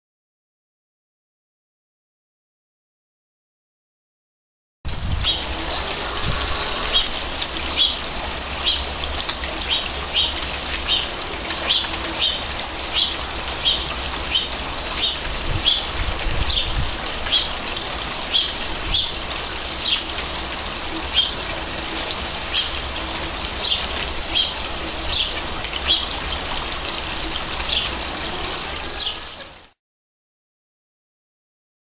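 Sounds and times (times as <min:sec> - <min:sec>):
water spout splashing: 0:04.9 - 0:29.2
rain falling on a pond: 0:04.9 - 0:29.8.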